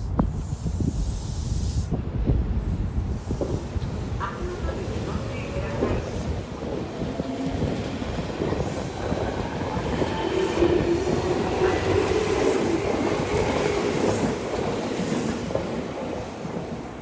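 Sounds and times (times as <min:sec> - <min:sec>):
electric train rumbling: 0:00.0 - 0:17.0
train humming tone: 0:01.0 - 0:17.0.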